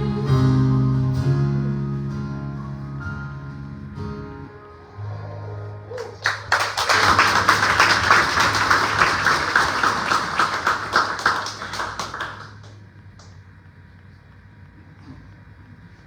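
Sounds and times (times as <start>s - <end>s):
audience clapping: 5.9s - 13.4s.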